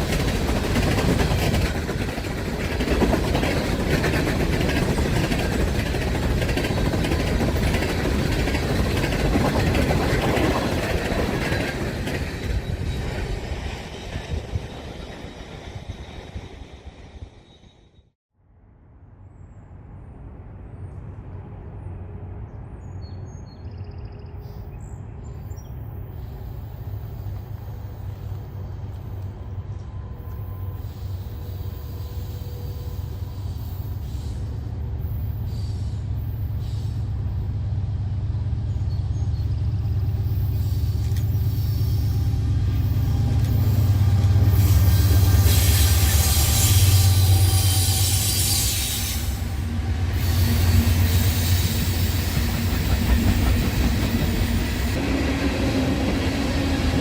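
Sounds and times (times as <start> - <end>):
locomotive rumble: 27.3 - 57.0
wheels hissing on rail: 30.2 - 37.7, 39.7 - 57.0.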